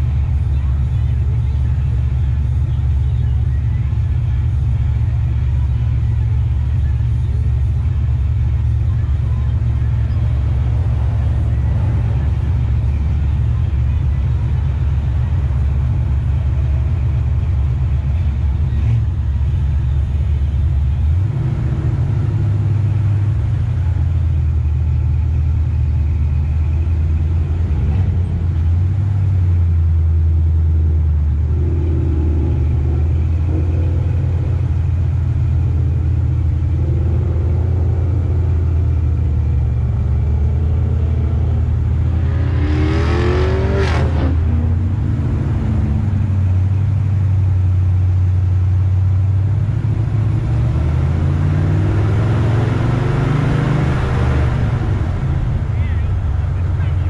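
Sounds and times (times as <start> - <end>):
car engine idling: 0.0 - 57.0
engine revving: 30.8 - 47.6, 49.4 - 57.0.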